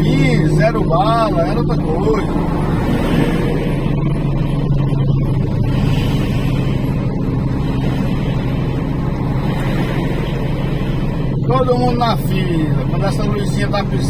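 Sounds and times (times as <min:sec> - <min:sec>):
road noise: 0:00.0 - 0:14.0
truck engine humming: 0:00.0 - 0:14.0.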